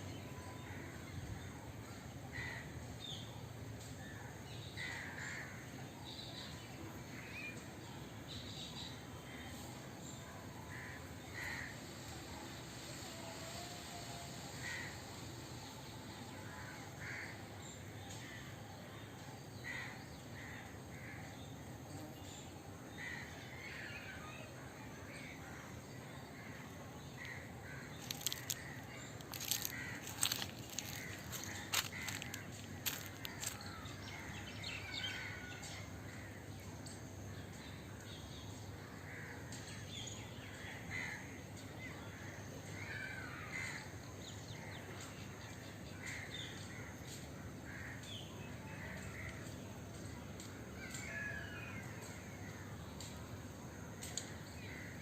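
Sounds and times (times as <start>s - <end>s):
birds calling: 27.2s - 34.9s.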